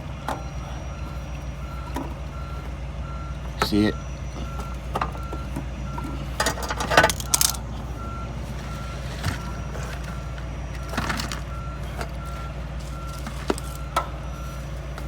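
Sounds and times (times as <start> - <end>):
low engine hum: 0.0 - 15.0
reversing alarm beeping: 0.0 - 15.0
metallic clanks of hand tools: 6.4 - 7.6.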